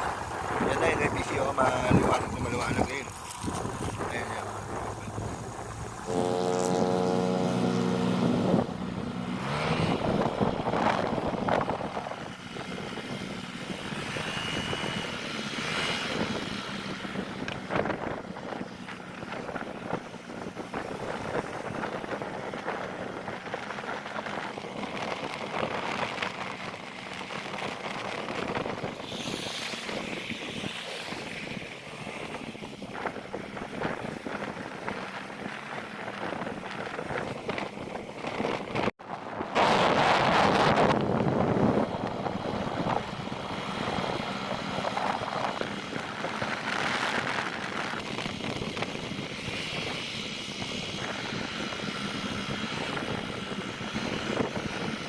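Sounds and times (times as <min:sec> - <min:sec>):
rushing wind and road noise: 0:00.0 - 0:55.0
vehicle engine hum: 0:00.0 - 0:55.0
pitched engine or horn note: 0:03.9 - 0:10.0.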